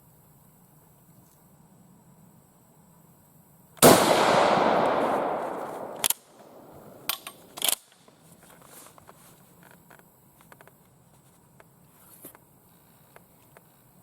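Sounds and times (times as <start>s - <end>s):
rifle shot with echo: 3.8s - 7.5s
rifle bolt clacking: 4.0s - 7.9s.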